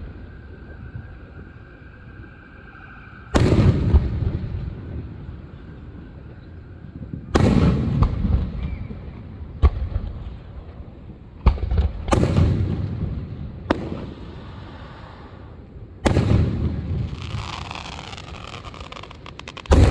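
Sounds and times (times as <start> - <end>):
fireworks exploding: 16.0 - 19.9.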